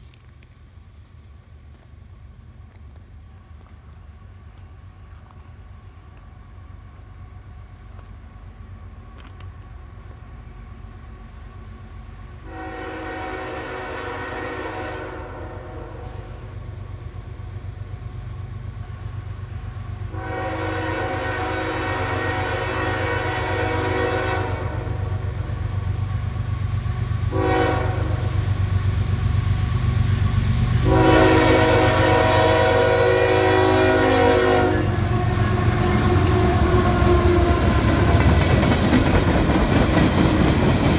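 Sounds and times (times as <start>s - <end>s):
locomotive engine rumble: 0.0s - 40.9s
train air horn: 12.4s - 16.6s, 20.1s - 25.2s, 27.3s - 28.6s, 30.5s - 38.6s.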